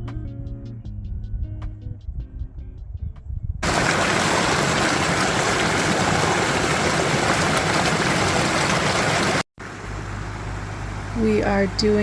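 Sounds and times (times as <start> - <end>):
creek water rushing: 3.6 - 9.4.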